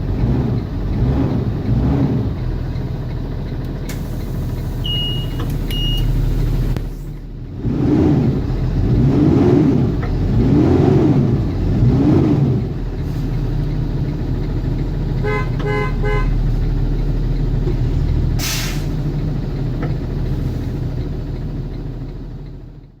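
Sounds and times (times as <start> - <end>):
diesel bus engine idling and revving: 0.0 - 23.0
sharp hiss: 18.4 - 19.0.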